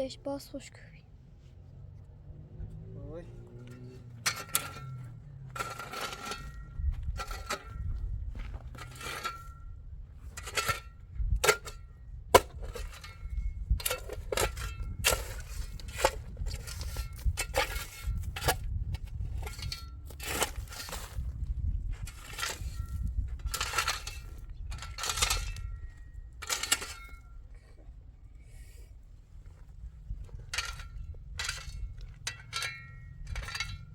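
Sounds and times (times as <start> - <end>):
metal tool scraping and striking: 3.6 - 21.3, 22.0 - 27.4, 30.3 - 33.9.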